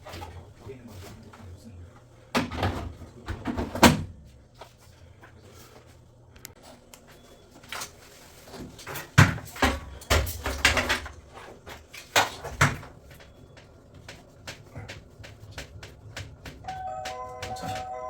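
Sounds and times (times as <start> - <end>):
knocks and clunks of hard objects: 2.3 - 4.2, 8.6 - 11.2, 11.8 - 18.0.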